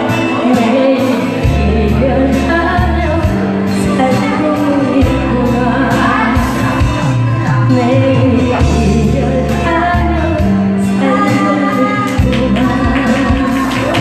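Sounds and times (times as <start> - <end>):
bass: 0.0 - 14.0
person singing: 0.0 - 14.0
drum beat: 12.2 - 14.0.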